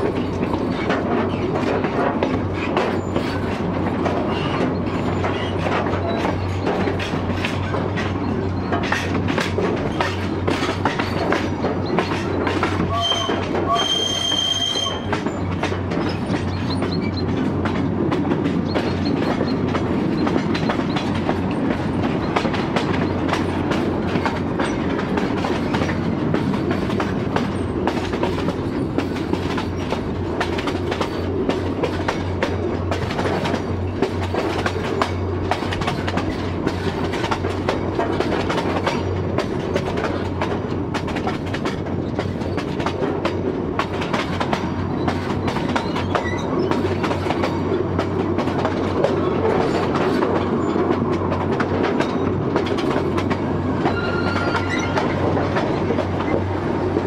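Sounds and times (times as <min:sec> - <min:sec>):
train wheels clicking and clattering: 0:00.0 - 0:57.0
high wheel squeal: 0:11.8 - 0:17.2, 0:45.0 - 0:46.8, 0:53.8 - 0:55.2.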